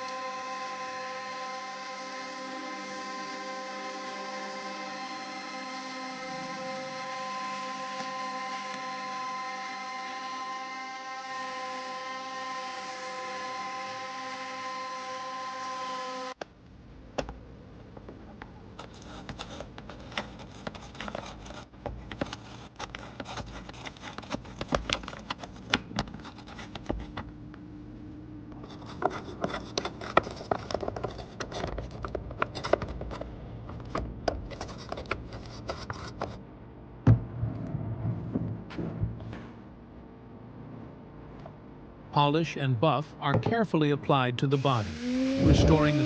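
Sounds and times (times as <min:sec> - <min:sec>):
tools scratching and clicking on toy car: 0:18.8 - 0:27.3, 0:28.6 - 0:36.4.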